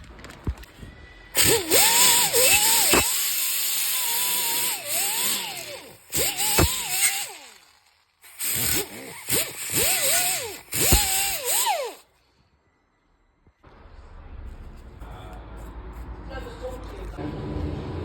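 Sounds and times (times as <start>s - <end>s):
power tool motor whine: 1.4s - 12.1s.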